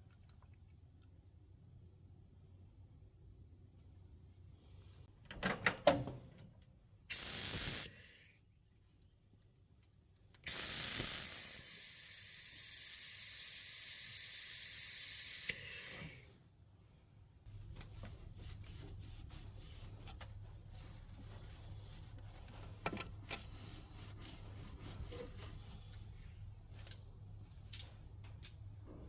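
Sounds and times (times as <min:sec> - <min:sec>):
compressed air hissing: 0:07.1 - 0:08.3, 0:10.4 - 0:16.4.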